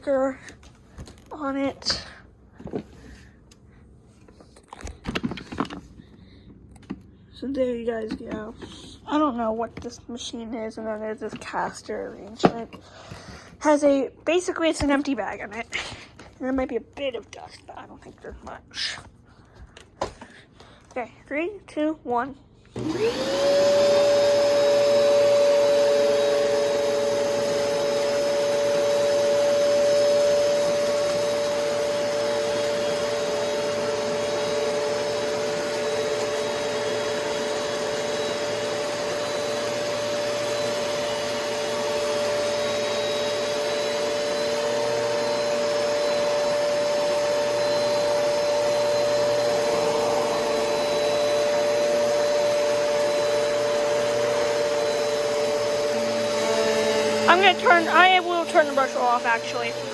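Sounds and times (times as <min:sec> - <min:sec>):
vacuum cleaner motor whine: 0:22.7 - 0:59.9
vacuum airflow rush: 0:22.8 - 0:59.9.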